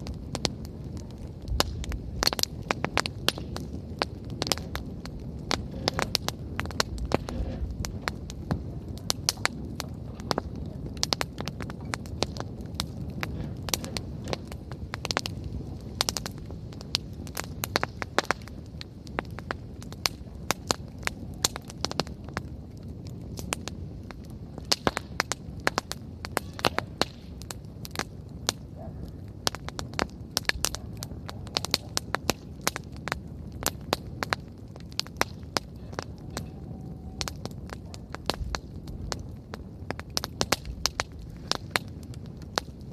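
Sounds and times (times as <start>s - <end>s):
campfire crackling and popping: 0.0s - 42.9s
low rush of flames: 0.0s - 42.9s.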